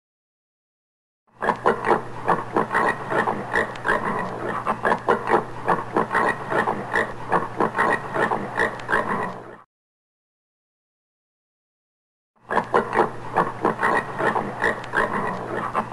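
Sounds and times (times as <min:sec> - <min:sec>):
warthog grunting: 0:01.4 - 0:09.6, 0:12.5 - 0:15.9.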